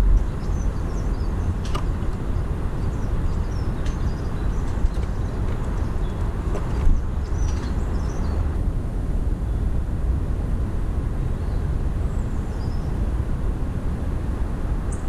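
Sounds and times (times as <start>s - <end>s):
small birds chirping: 0.0s - 8.6s
low background rumble: 0.0s - 15.0s.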